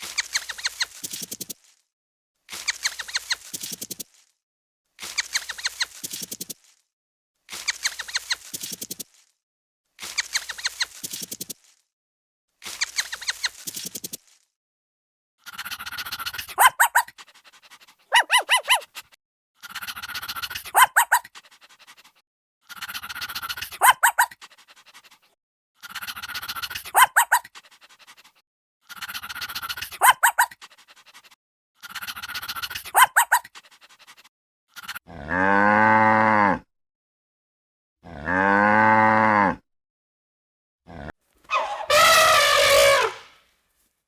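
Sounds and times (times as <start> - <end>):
short high-pitched animal cry: 18.1 - 18.8, 41.5 - 43.3
cow mooing: 38.1 - 39.6, 41.5 - 43.3.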